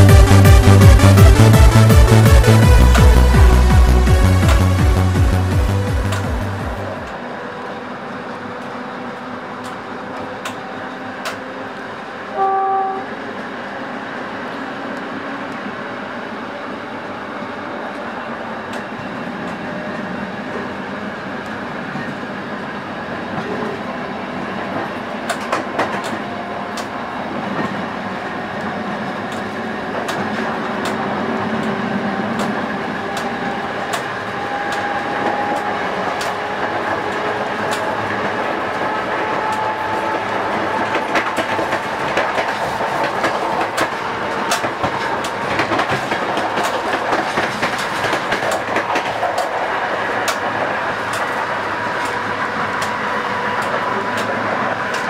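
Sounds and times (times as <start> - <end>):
train running rumble: 0.0 - 55.0
wheels clicking over rail joints: 24.7 - 27.9, 28.6 - 55.0.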